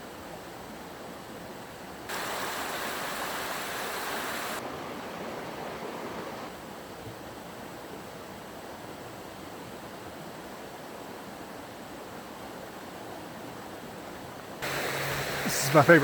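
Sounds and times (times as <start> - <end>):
creek water rushing: 2.1 - 6.7, 12.2 - 16.0.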